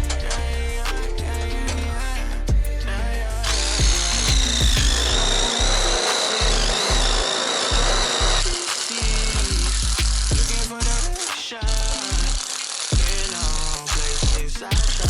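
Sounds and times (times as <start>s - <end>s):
hip-hop music with heavy bass: 0.0s - 15.0s
power drill whining: 3.5s - 15.0s.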